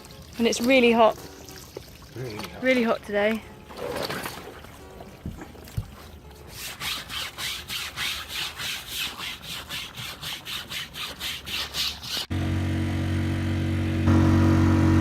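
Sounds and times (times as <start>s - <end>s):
rhythmic scrubbing of canvas: 3.8s - 12.3s
engine drone: 12.3s - 15.0s.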